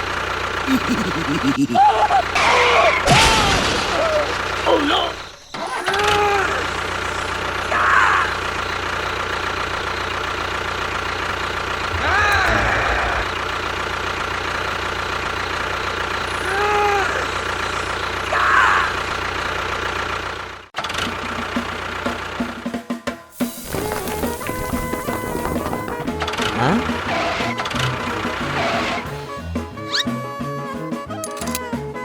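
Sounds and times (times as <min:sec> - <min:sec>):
engine knocking: 0:00.0 - 0:02.8, 0:04.1 - 0:29.2
engine running: 0:00.0 - 0:32.0
rising and falling squeals: 0:11.8 - 0:13.8.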